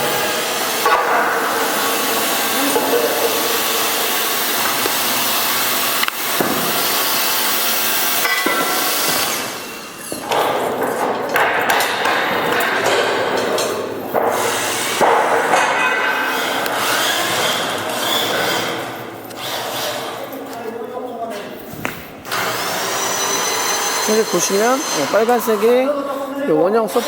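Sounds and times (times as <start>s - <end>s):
mechanical hoisting noise: 0.0s - 20.5s
metal knocks: 0.8s - 5.0s, 10.1s - 17.0s.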